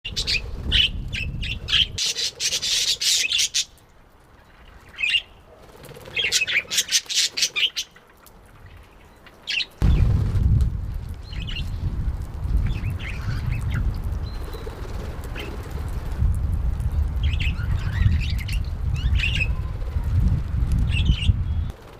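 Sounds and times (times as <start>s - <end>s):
low rumble: 9.8s - 14.4s.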